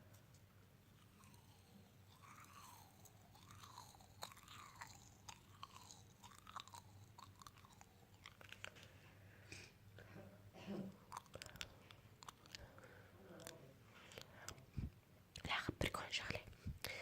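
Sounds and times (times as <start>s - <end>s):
close chewing with wet mouth sounds: 1.0s - 9.0s, 10.9s - 15.6s
small crunches and clicks: 2.1s - 9.0s.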